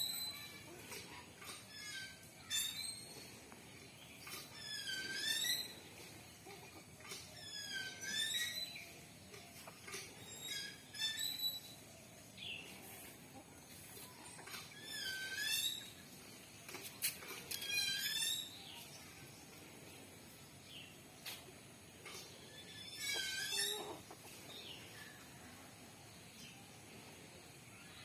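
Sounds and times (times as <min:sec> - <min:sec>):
chickens calling: 0:22.0 - 0:25.3.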